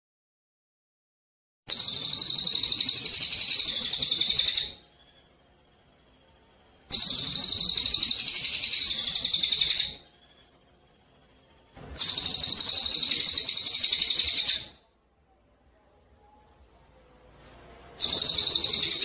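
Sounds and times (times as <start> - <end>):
sparrow high-pitched trill: 1.7 - 14.9, 18.0 - 19.0.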